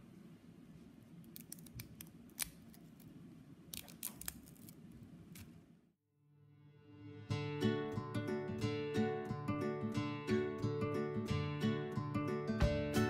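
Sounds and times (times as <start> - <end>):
fried snack cracking and snapping: 3.7 - 4.8.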